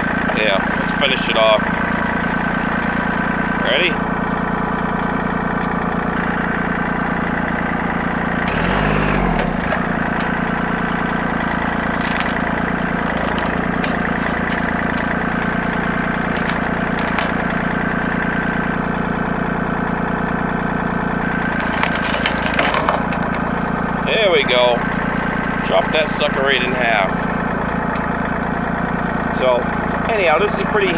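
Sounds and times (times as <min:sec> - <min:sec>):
tractor engine under load: 0:00.0 - 0:30.9.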